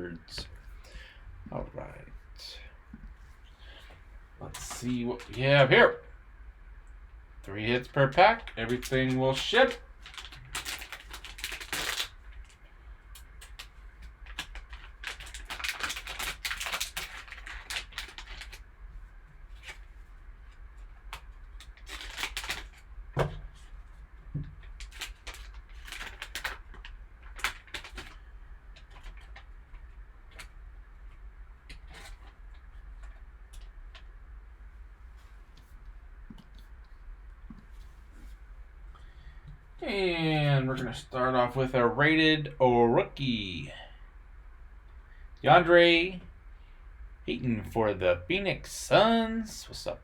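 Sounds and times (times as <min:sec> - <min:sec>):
card wrapper crinkling and tearing: 0:08.1 - 0:12.6, 0:13.4 - 0:18.6, 0:21.1 - 0:22.9, 0:24.6 - 0:28.2.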